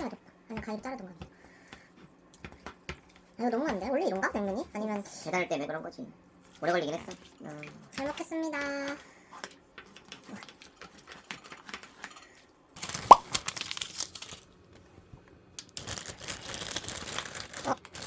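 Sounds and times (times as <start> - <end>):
plastic packaging crinkling: 12.8 - 14.6, 15.6 - 18.0.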